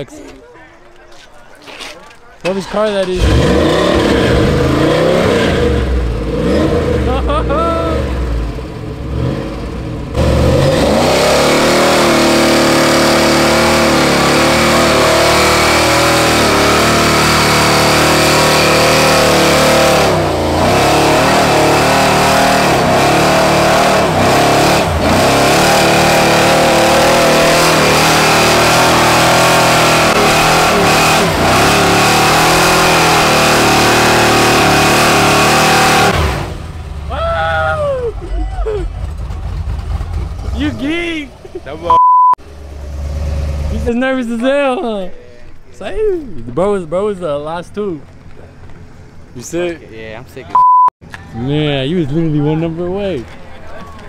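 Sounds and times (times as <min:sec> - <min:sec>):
truck engine revving high: 0:03.0 - 0:44.1.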